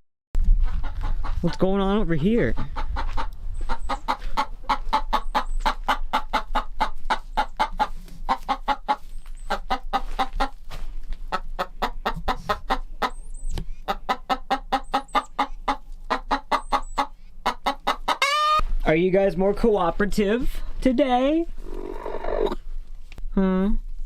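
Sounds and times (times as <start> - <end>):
chickens clucking: 0.6 - 18.7, 21.6 - 22.6.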